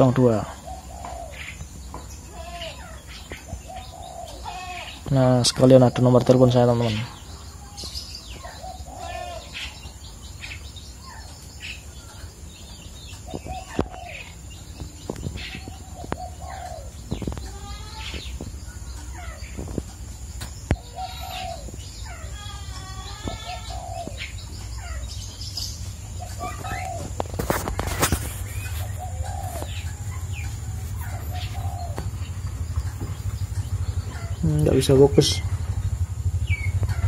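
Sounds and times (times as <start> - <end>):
birds chirping: 0.0 - 37.0
quick wavering bird calls: 13.2 - 34.6.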